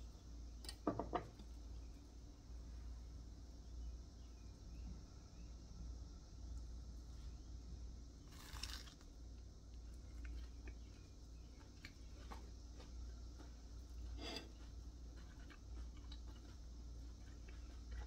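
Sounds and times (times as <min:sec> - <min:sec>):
crunchy bite into toast: 0:08.3 - 0:09.1
faint chewing: 0:08.3 - 0:18.0.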